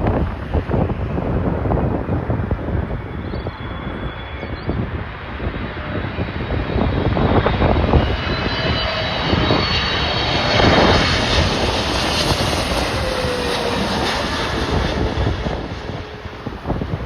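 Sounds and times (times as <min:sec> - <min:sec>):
jet airliner passing: 0:00.0 - 0:17.0
wind buffeting microphone: 0:00.0 - 0:17.0.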